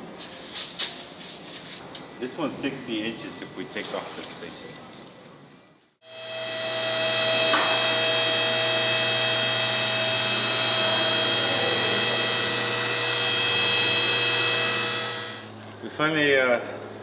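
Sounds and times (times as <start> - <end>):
power tool whining: 6.0 - 15.8.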